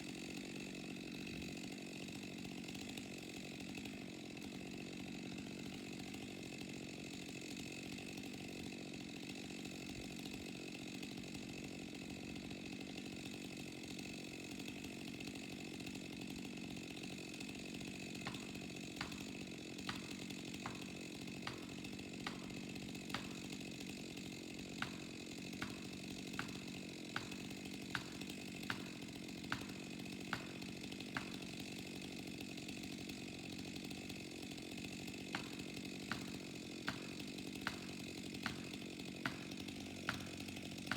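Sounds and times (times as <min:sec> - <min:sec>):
chainsaw engine running: 0:00.0 - 0:40.9.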